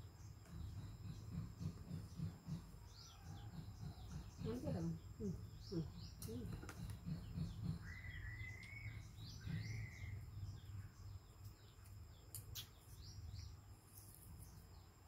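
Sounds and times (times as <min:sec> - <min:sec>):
faint bird chirps: 0:00.0 - 0:15.0
steady low hum: 0:00.0 - 0:15.0
wavering whistled calls: 0:07.8 - 0:10.3.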